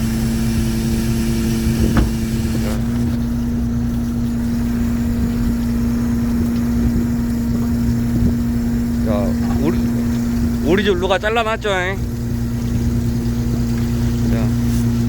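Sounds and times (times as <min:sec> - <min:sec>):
boat engine humming: 0:00.0 - 0:15.0
brief knock: 0:01.8 - 0:02.7.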